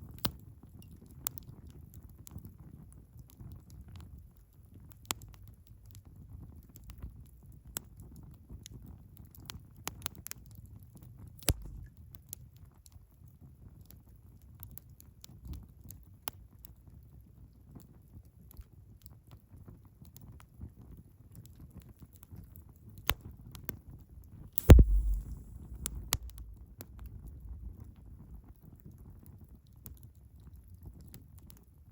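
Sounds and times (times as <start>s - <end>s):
wood fire crackling and popping: 11.5s - 11.9s, 24.6s - 27.0s
low rumble of fire: 11.5s - 12.0s, 24.6s - 31.9s.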